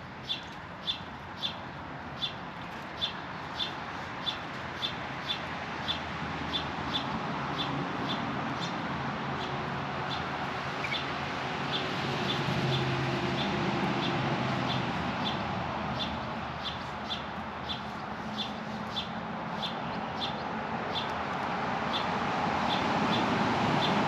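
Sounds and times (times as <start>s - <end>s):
bird chirping: 0.2s - 1.6s, 9.4s - 21.2s.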